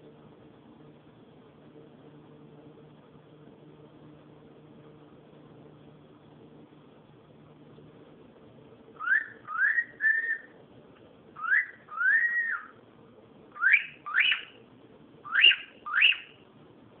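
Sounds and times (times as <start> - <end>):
cockatiel whistling: 9.0 - 10.6, 11.4 - 12.8, 13.6 - 14.6, 15.2 - 16.4.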